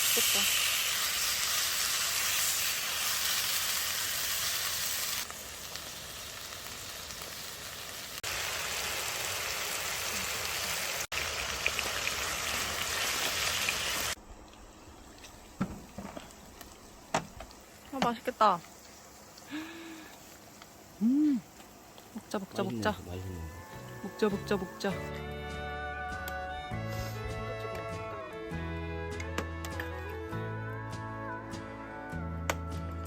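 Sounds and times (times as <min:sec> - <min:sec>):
food sizzling on grill: 0:00.0 - 0:25.4.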